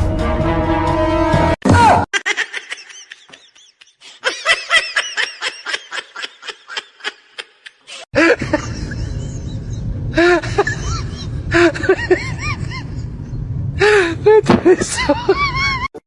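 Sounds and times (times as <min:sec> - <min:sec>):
high-pitched laughing: 0:02.1 - 0:13.1, 0:14.3 - 0:16.0.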